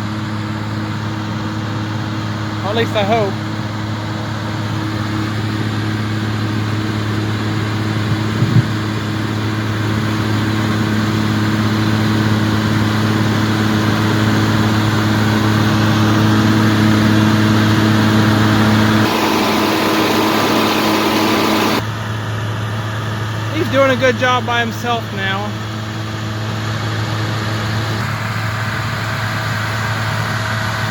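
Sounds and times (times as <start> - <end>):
tractor engine droning: 14.6 - 25.6.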